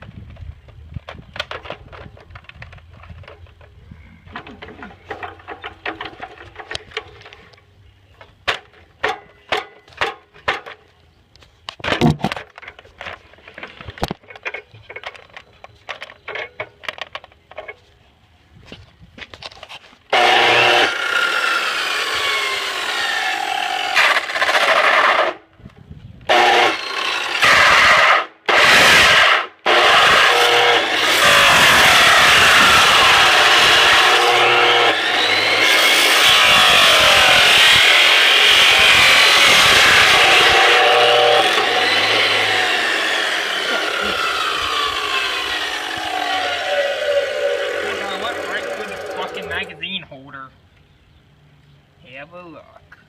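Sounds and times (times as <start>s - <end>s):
plastic parts clicking: 11.7s - 17.8s
chop saw cutting plastic: 20.1s - 25.4s, 26.3s - 49.8s.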